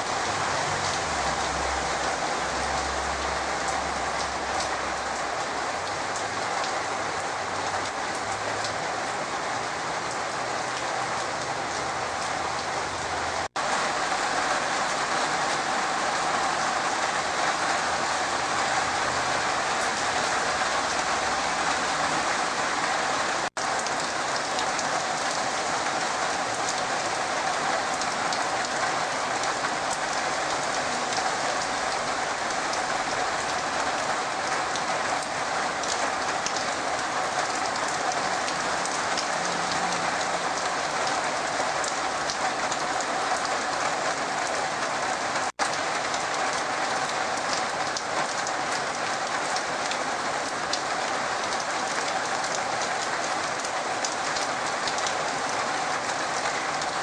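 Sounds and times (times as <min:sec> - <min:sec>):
heavy rain on trees: 0:00.0 - 0:57.0.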